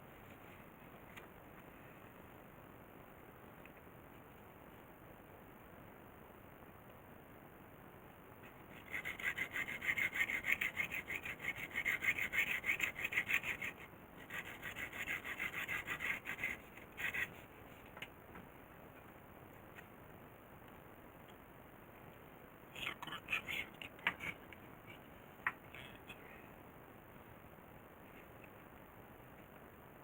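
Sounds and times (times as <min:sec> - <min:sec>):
hand saw strokes: 0:08.8 - 0:17.4.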